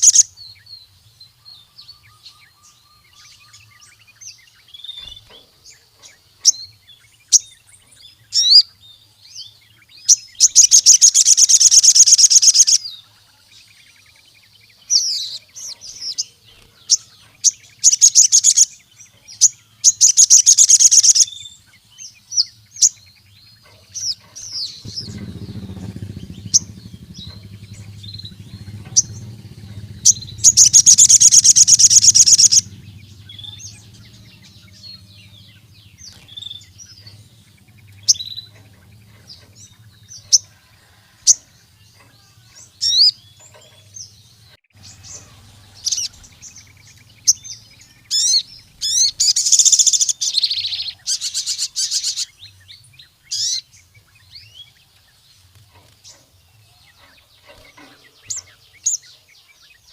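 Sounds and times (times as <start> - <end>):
buzzing bird trills: 0.0 - 0.3, 10.1 - 13.3, 14.9 - 21.5, 23.6 - 44.1, 44.7 - 52.4
bird chirping: 0.0 - 59.9
low background hum: 23.0 - 52.2.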